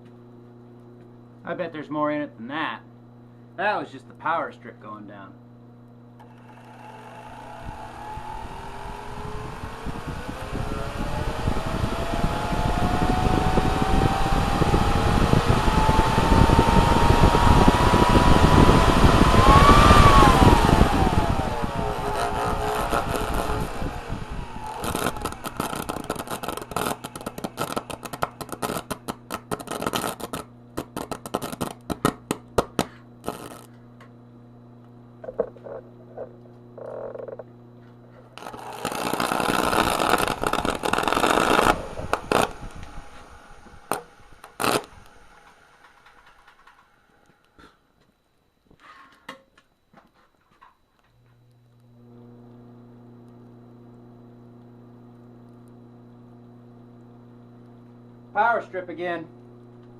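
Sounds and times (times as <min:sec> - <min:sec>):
vacuum cleaner motor whine: 0:06.1 - 0:28.9, 0:35.3 - 0:46.9, 0:51.2 - 0:59.9
crackling and sharp snapping: 0:17.0 - 0:33.8, 0:38.4 - 0:43.0, 0:43.9 - 0:45.2.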